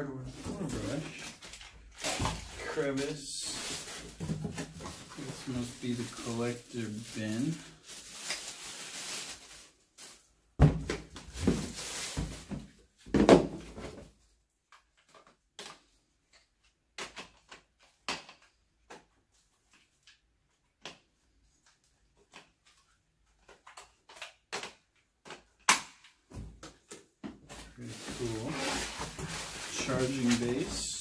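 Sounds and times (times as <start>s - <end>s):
plastic packaging rustling: 0.2s - 10.4s, 11.1s - 12.7s, 27.4s - 31.0s.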